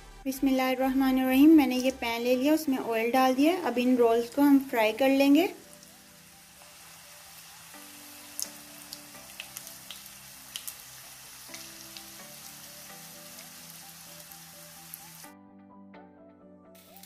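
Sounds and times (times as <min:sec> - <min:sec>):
food frying in hot oil: 0:03.4 - 0:15.3
oil popping and crackling: 0:05.4 - 0:15.3.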